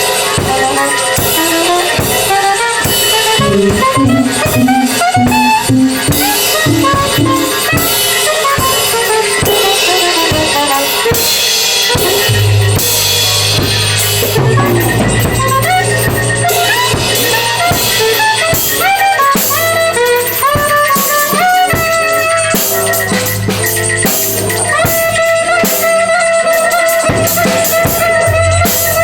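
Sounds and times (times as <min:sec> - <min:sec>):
drum kit hits: 0:00.0 - 0:29.0
pitched instrument playing runs: 0:00.0 - 0:29.0
held low note: 0:11.9 - 0:18.9.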